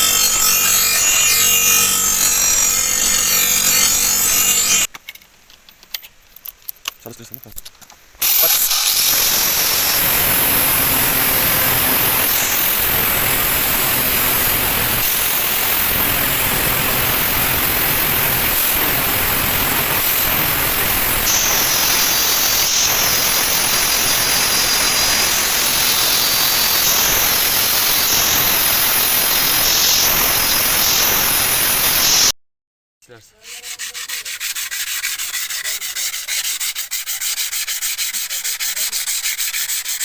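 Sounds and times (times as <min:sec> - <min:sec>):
electric grinder grinding steel: 0:00.0 - 0:04.9, 0:08.2 - 0:32.3.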